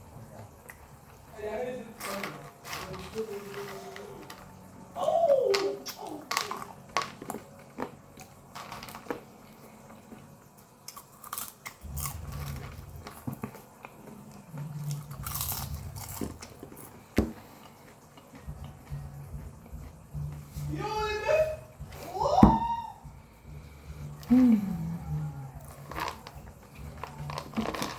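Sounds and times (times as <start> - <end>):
popcorn crunching while chewed: 5.5 - 20.1, 24.1 - 27.9.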